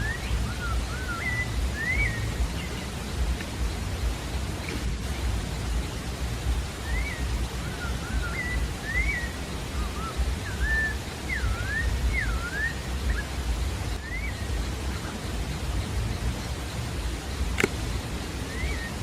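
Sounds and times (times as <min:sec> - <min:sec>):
bird whistling: 0:00.0 - 0:02.9, 0:06.7 - 0:16.2, 0:17.5 - 0:19.0
low rushing noise: 0:00.0 - 0:19.0.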